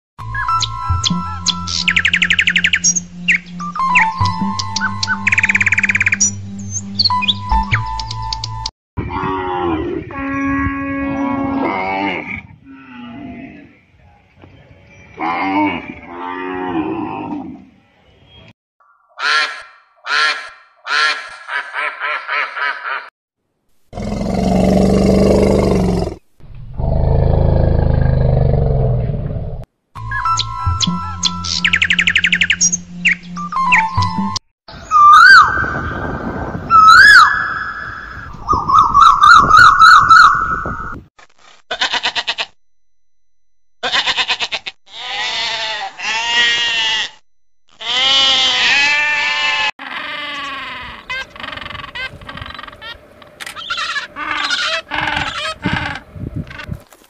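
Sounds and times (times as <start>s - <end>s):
bird warbling trill: 0.3s - 8.7s, 30.1s - 35.6s
duck quacking: 19.2s - 23.1s
sheep bleating: 43.8s - 47.2s, 47.8s - 49.7s.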